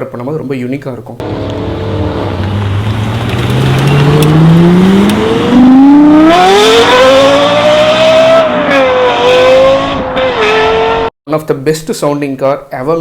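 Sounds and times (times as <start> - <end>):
sports car engine revving: 1.2 - 11.1.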